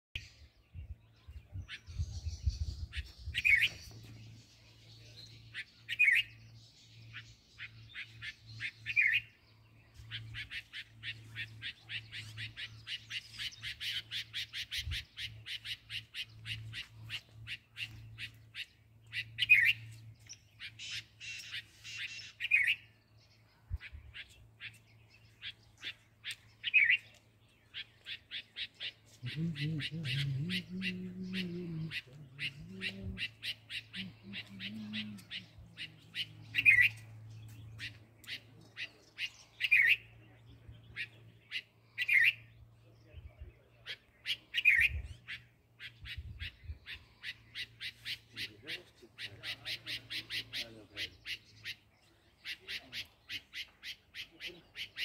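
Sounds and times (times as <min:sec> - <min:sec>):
bird chattering calls: 0:10.0 - 0:20.0, 0:20.6 - 0:22.9, 0:23.8 - 0:40.1, 0:43.8 - 0:55.0.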